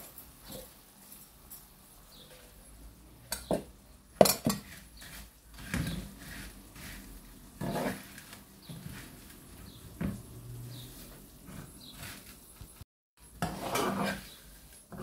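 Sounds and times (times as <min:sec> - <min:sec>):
dishes and cutlery clinking: 0:00.0 - 0:06.9.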